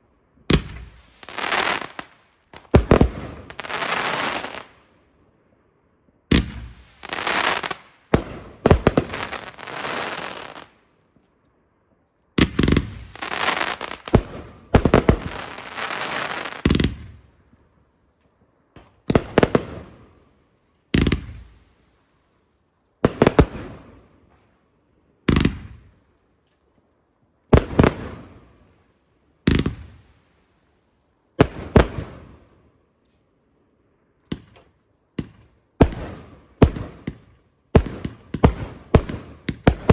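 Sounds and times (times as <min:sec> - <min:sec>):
fireworks bangs and crackling: 0:00.5 - 0:04.8, 0:06.3 - 0:10.8, 0:12.4 - 0:17.6, 0:18.8 - 0:20.1, 0:20.9 - 0:21.8, 0:23.0 - 0:24.0, 0:25.3 - 0:25.9, 0:27.5 - 0:28.6, 0:29.4 - 0:30.4, 0:31.4 - 0:32.5, 0:34.3 - 0:39.9.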